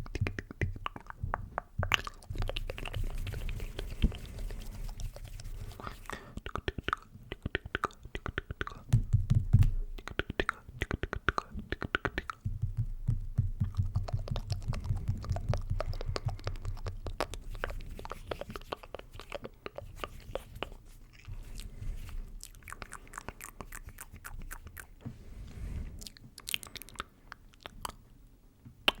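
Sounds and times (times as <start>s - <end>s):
wet mouth clicks and smacks: 0.0s - 9.2s, 10.0s - 12.8s, 13.6s - 21.8s, 22.4s - 25.0s, 26.0s - 28.1s.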